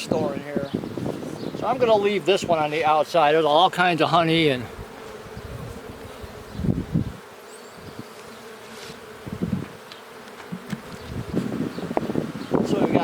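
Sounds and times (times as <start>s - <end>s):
honeybees buzzing: 0.0s - 13.0s
hive frames bumping: 8.0s - 13.0s.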